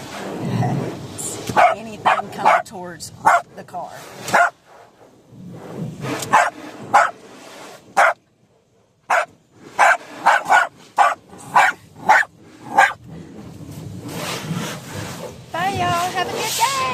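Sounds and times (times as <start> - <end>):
dog barking angrily: 1.5 - 3.5, 4.3 - 4.6, 6.3 - 7.2, 8.0 - 8.2, 9.1 - 13.0.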